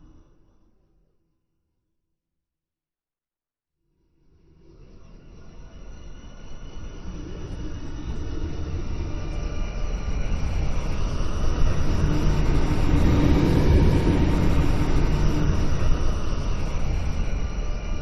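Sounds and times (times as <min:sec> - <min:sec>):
dark flyby whoosh: 0:07.4 - 0:18.0.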